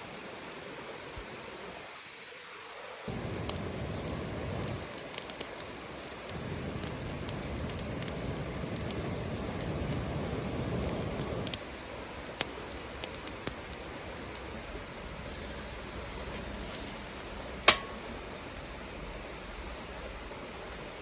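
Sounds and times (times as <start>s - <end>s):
fire soft steady hiss: 0.0s - 21.0s
wood fire crackling and popping: 3.1s - 21.0s
loud ringing snap: 17.6s - 18.1s.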